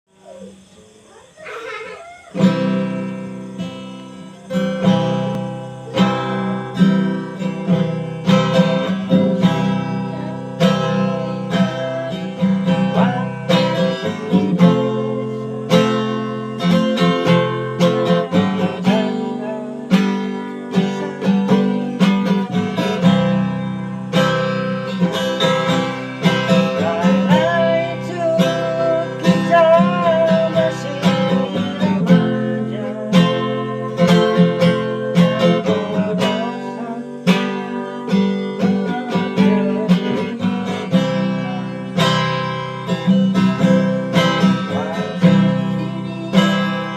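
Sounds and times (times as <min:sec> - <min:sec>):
acoustic guitar strumming: 0:00.1 - 0:46.9.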